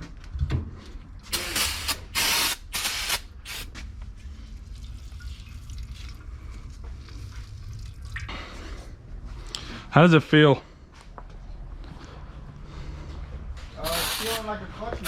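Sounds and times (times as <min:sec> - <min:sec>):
hissing sprays of liquid and air: 0:01.3 - 0:03.7, 0:13.8 - 0:14.6.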